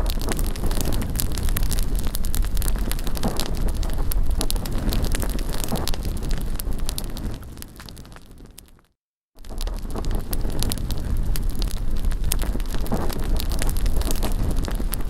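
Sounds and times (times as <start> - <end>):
wind rumbling on microphone: 0.0 - 8.8, 9.4 - 15.0
bonfire crackling and popping: 0.0 - 15.0.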